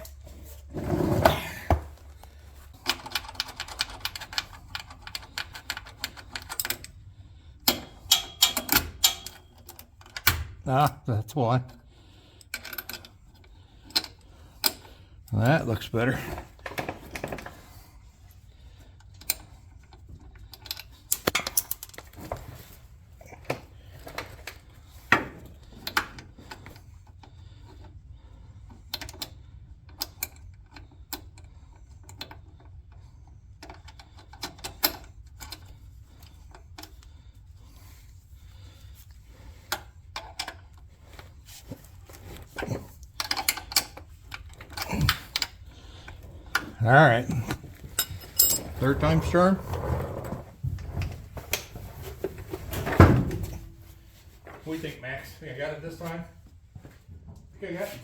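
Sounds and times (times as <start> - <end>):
metal hand tools clinking: 47.4 - 49.5.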